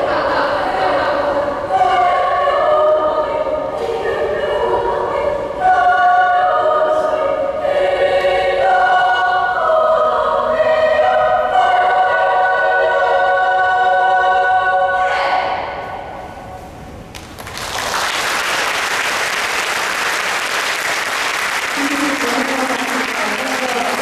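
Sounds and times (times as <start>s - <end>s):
choir singing held chords: 0.0s - 16.5s.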